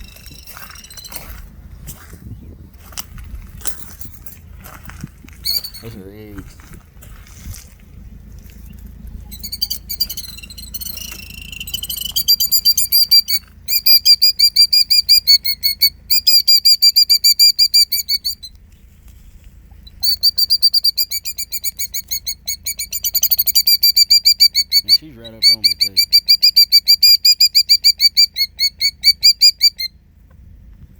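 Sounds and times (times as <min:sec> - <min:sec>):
bird alarm call shrill notes: 0:00.0 - 0:01.4, 0:05.4 - 0:06.2, 0:09.2 - 0:18.6, 0:19.9 - 0:29.9.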